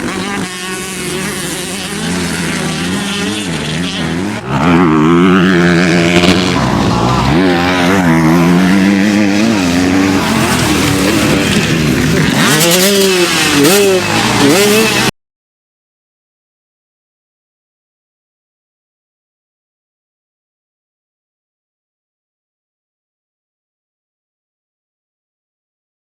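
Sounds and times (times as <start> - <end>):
motocross bike engines revving: 0.0 - 15.1.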